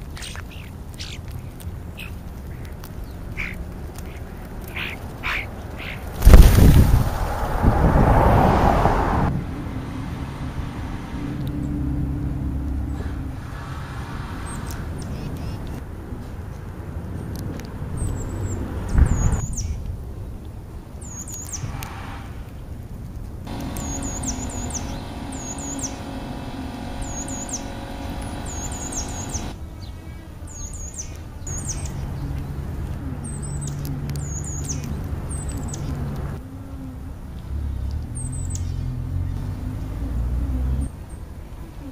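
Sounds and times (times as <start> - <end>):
vehicle engine humming: 2.4 - 14.0, 23.5 - 29.7, 31.5 - 41.1
starlings chirping and whistling: 3.0 - 6.1, 23.5 - 29.6, 30.6 - 32.0
loud rushing noise: 6.1 - 9.5, 23.5 - 29.6
low rumble: 6.1 - 13.0.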